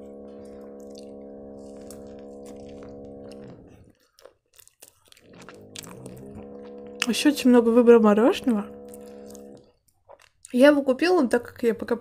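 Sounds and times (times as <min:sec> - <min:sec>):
steady low hum: 0:00.0 - 0:03.9, 0:05.2 - 0:09.6
chewing with crunching clicks: 0:00.3 - 0:07.4, 0:08.8 - 0:10.7.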